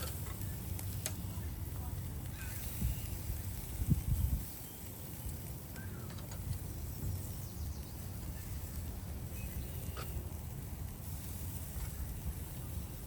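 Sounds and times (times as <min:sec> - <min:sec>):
low uneven rumble: 0:00.0 - 0:13.0
faint bird chirps: 0:04.5 - 0:06.3, 0:07.2 - 0:10.3.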